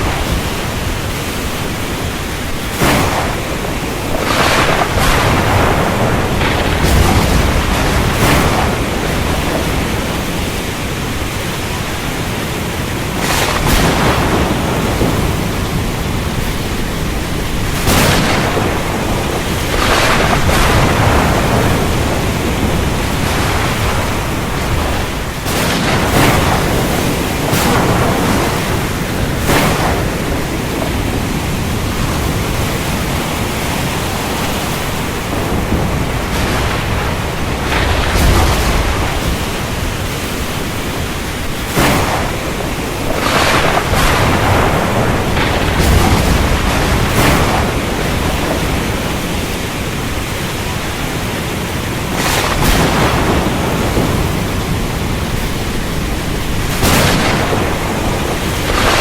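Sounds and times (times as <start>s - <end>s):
heavy rain: 0.0s - 59.0s
thunder cracks: 0.0s - 59.0s.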